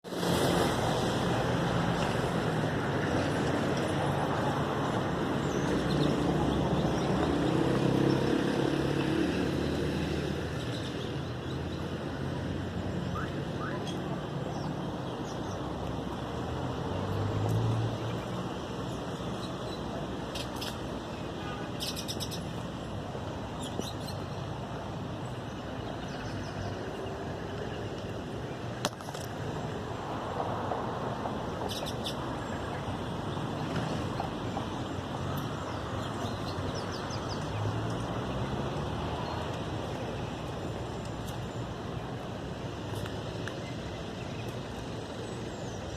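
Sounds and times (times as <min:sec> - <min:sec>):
traffic hum: 0:00.0 - 0:45.9
small birds chirping: 0:18.1 - 0:22.7, 0:31.6 - 0:41.8.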